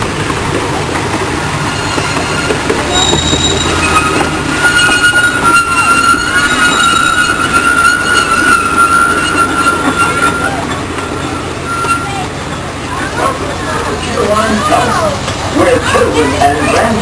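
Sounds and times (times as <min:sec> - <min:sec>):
rumble of train cars: 0:00.0 - 0:17.0
train wheels squealing on rail: 0:01.6 - 0:15.0.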